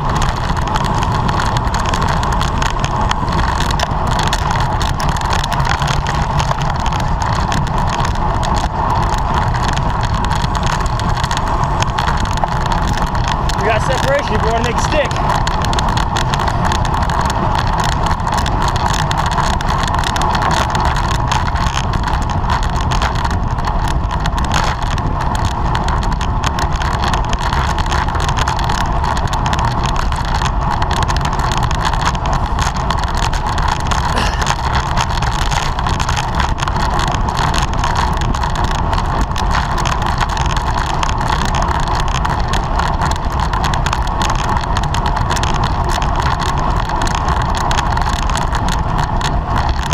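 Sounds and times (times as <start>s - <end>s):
bicycle tyre and drivetrain noise: 0.0s - 49.9s
wind rushing over microphone: 0.0s - 49.9s
mid-pitched hum: 33.9s - 34.7s.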